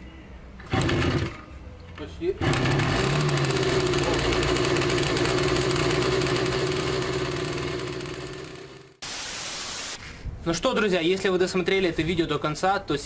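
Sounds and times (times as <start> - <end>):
moped engine running: 0.7 - 1.4, 2.4 - 9.0
short even hiss: 9.0 - 10.3.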